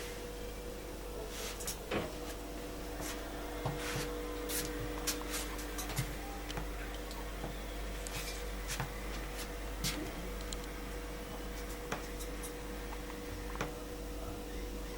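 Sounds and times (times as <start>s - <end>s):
low electrical hum: 0.0s - 14.9s
small clicks and hissy ticks: 10.4s - 10.8s.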